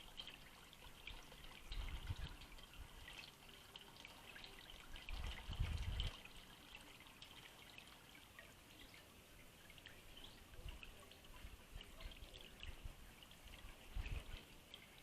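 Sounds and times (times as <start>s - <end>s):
small birds chirping: 6.2s - 15.0s.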